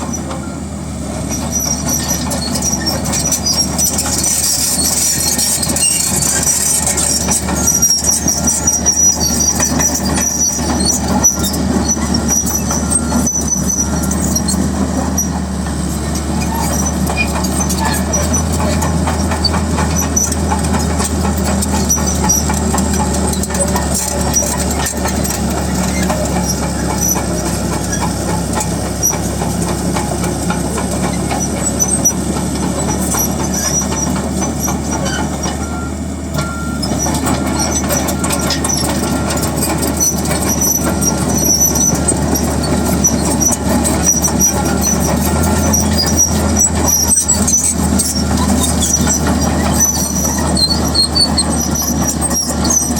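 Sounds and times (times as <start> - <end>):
bulldozer diesel engine running: 0.0 - 52.9
steel tracks clanking: 0.0 - 52.9
track links squeaking: 0.0 - 52.9.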